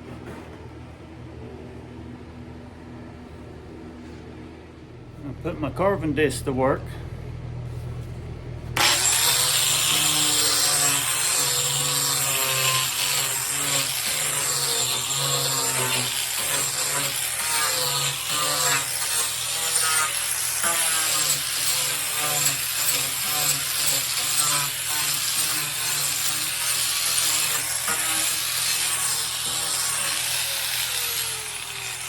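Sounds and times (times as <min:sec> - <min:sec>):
angle grinder cutting wood: 0:08.8 - 0:32.0.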